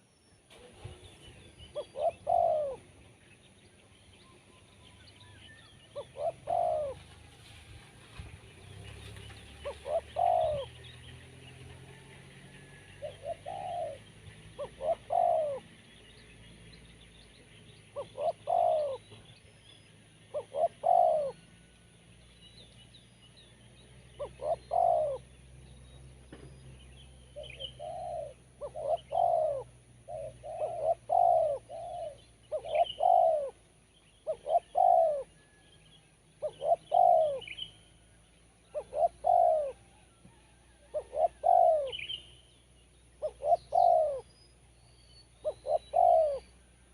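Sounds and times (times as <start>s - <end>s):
small birds chirping: 0.0s - 7.1s, 8.0s - 11.8s, 12.7s - 46.9s
dove cooing: 0.5s - 3.0s, 5.9s - 7.2s, 9.5s - 15.8s, 17.9s - 19.3s, 20.3s - 21.7s, 24.1s - 25.4s, 27.3s - 35.7s, 36.4s - 37.9s, 38.6s - 42.3s, 43.2s - 44.3s, 45.4s - 46.7s.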